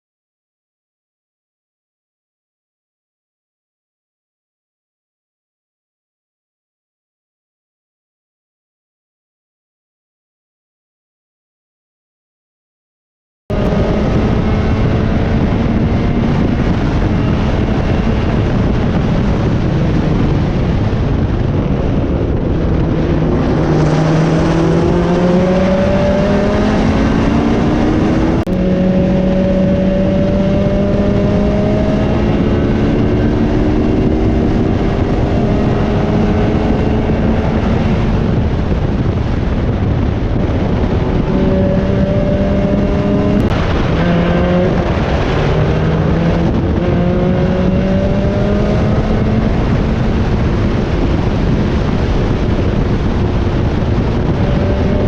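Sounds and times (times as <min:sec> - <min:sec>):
race car engine running hard: 0:13.5 - 0:55.0.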